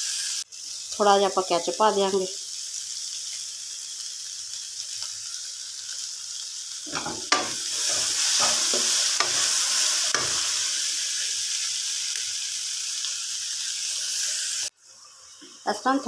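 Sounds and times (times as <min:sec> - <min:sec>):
food sizzling in a wok: 0:00.0 - 0:16.0
wooden spatula scraping a pan: 0:06.9 - 0:10.5.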